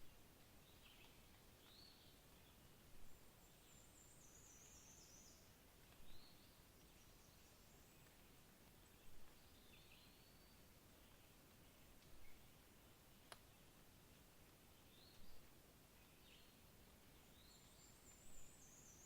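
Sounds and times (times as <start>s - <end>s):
faint background hiss: 0.0s - 19.0s.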